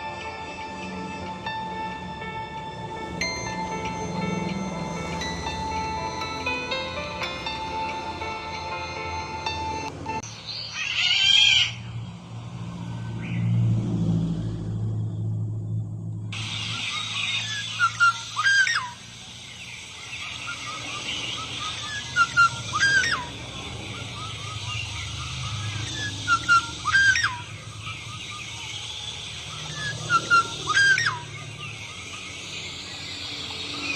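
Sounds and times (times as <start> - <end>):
high chirping: 0.0 - 12.1, 16.4 - 33.9
bird whistling: 3.2 - 11.8, 16.4 - 33.9.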